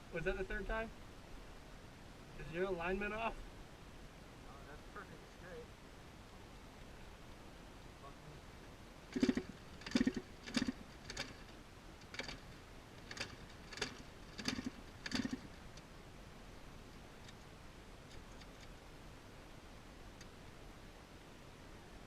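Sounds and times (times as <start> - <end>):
faint ticks: 20.1 - 20.6.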